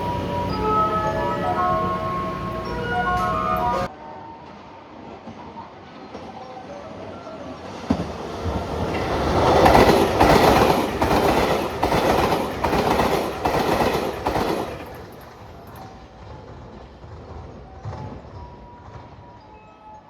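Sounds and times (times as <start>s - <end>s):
train wheels clacking on rails: 7.8s - 19.6s.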